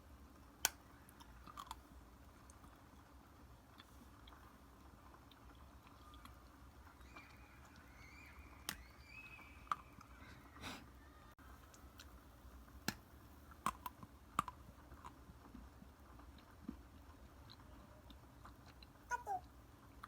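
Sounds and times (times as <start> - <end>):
frozen chocolate crunching: 0.6 - 2.8
chewing: 1.1 - 6.6, 13.5 - 19.6.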